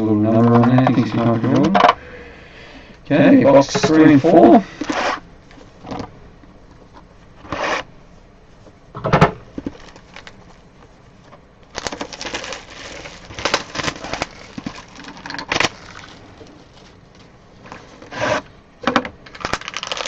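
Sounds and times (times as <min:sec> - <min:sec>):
cardboard scraping: 0:03.6 - 0:05.2, 0:07.4 - 0:07.9, 0:15.6 - 0:18.5
wrapper crinkling: 0:09.6 - 0:10.9, 0:11.6 - 0:18.0, 0:19.3 - 0:20.0
rustling and tearing: 0:09.6 - 0:18.4, 0:19.3 - 0:20.0.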